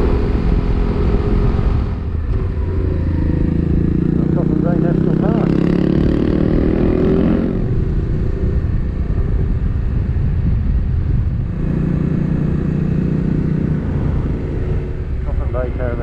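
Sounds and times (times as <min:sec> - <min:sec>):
steady engine note: 0:00.0 - 0:09.4
motorcycle engine rumble: 0:00.0 - 0:16.0.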